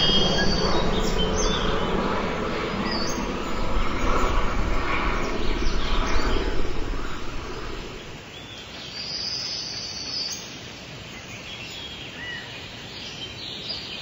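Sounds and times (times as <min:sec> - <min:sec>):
steady low rumble: 0:00.0 - 0:08.2
high songbird chirps: 0:00.0 - 0:10.3.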